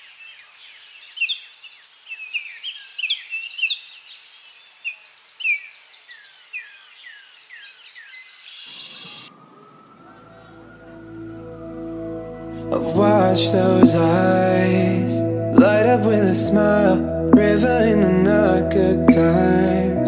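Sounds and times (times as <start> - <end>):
songbirds chirping: 0.0 - 20.0
music: 10.8 - 20.0.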